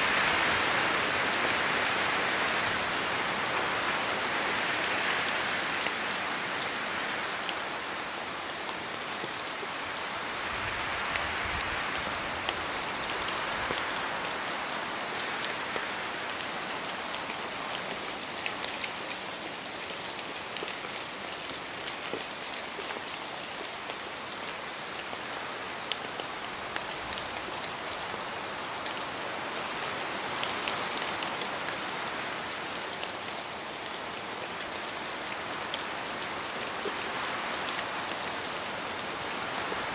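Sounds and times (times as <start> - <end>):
close raindrops striking: 0.0 - 39.9
steady rain falling: 0.0 - 39.9
wind rushing in trees: 9.8 - 17.6.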